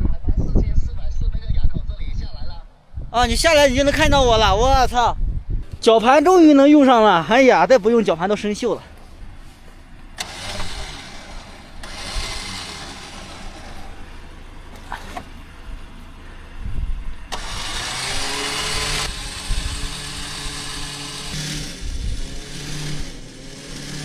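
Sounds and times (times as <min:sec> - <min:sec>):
vehicle engine humming: 0:05.5 - 0:24.0.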